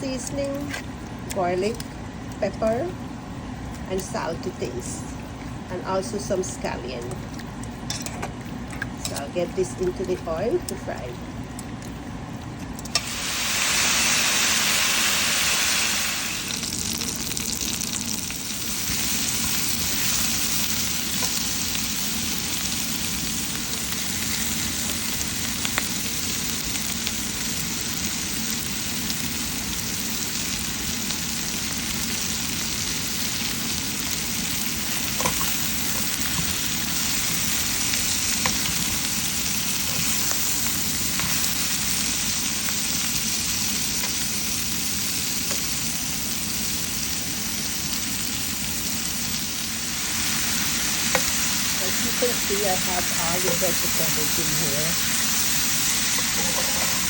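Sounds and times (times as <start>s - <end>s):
chicken sizzling in hot oil: 12.9s - 57.0s.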